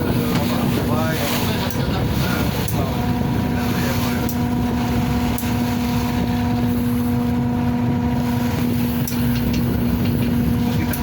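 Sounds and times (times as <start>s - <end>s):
ferry engines humming: 0.0s - 11.0s.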